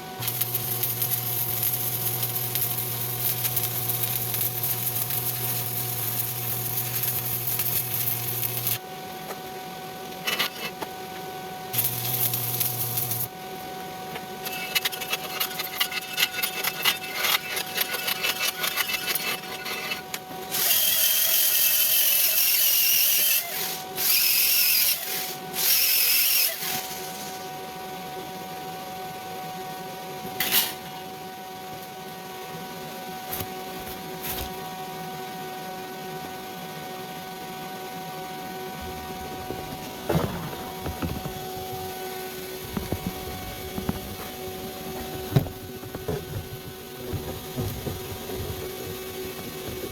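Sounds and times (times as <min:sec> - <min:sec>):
loud hissing tool noise: 0:00.0 - 0:08.8, 0:11.7 - 0:13.3, 0:18.0 - 0:27.5
welding arc crackling: 0:00.0 - 0:08.8, 0:11.7 - 0:13.3.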